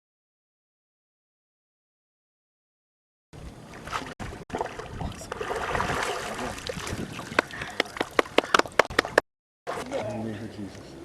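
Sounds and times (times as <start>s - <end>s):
water splashing and trickling: 3.6s - 10.0s.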